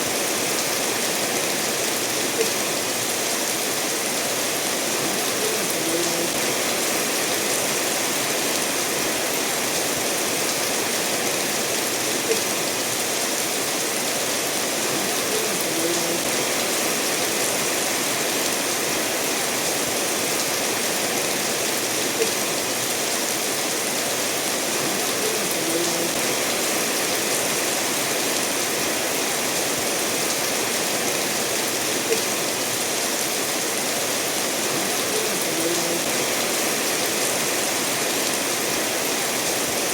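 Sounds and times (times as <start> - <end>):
steady rain falling: 0.0 - 39.9
stream running over stones: 0.0 - 39.9.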